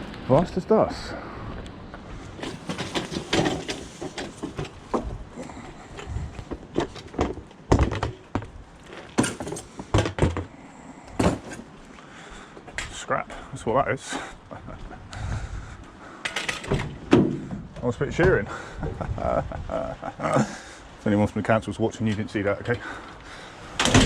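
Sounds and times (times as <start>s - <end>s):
scrap items knocking and thudding: 2.3s - 10.6s, 11.2s - 11.7s, 16.3s - 18.4s.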